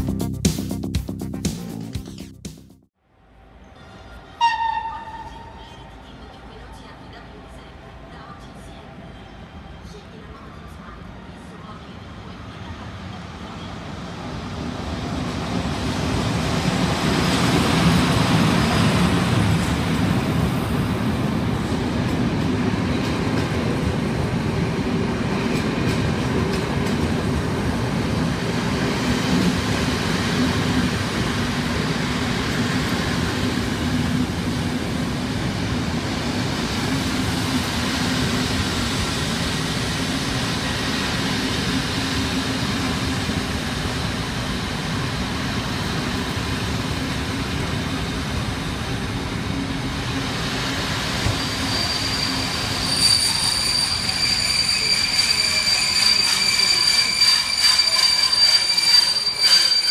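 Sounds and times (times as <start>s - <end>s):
train wheels rumbling on rails: 12.5s - 59.9s.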